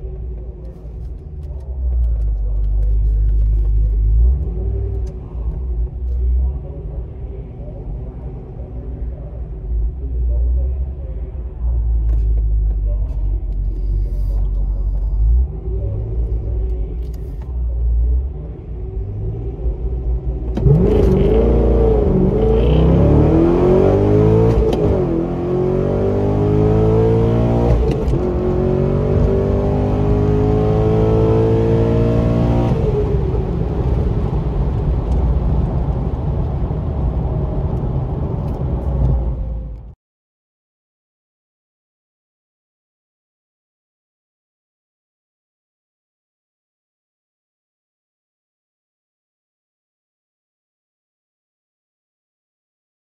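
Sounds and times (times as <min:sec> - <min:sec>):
car engine accelerating: 0:00.0 - 0:40.0.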